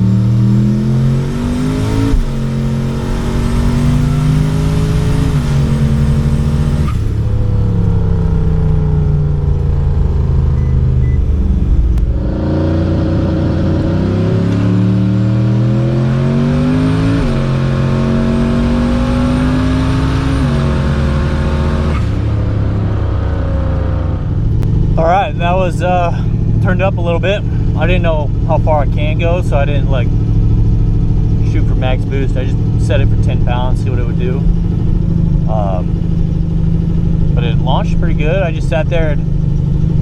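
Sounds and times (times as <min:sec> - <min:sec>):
turbocharged drag car engine revving: 0:00.0 - 0:40.0.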